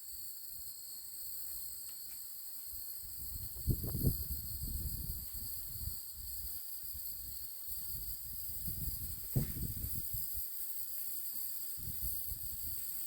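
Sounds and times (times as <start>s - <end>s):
crickets droning: 0.0s - 13.0s
low rumbling on microphone: 8.6s - 10.3s.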